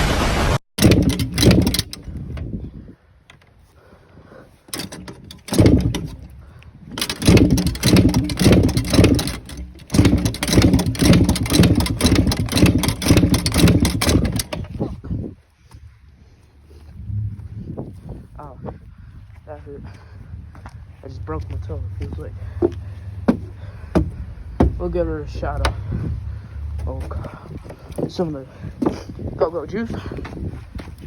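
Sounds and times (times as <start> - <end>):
dirt bike engine sputtering: 0.8 - 2.6, 4.7 - 15.0.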